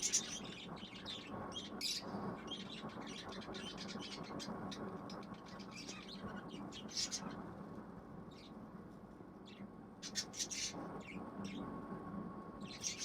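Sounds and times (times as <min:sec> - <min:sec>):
budgies chirping: 0:00.0 - 0:07.4, 0:09.5 - 0:11.7, 0:12.6 - 0:13.0.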